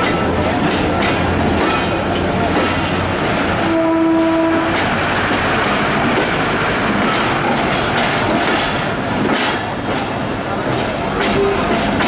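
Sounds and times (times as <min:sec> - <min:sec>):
train wheels rumbling on track: 0:00.0 - 0:12.0
train horn: 0:03.6 - 0:04.8.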